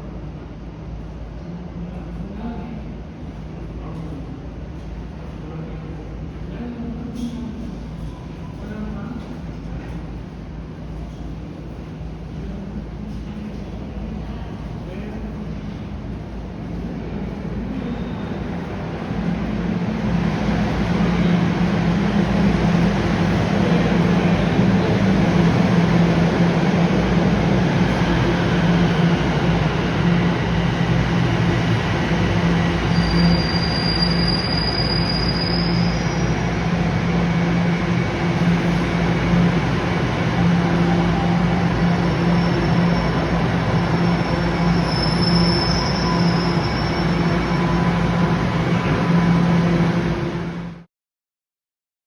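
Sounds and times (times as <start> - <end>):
subway train rumble and motor hum: 0.0 - 50.9
train wheels squealing: 32.4 - 36.9, 40.8 - 48.4.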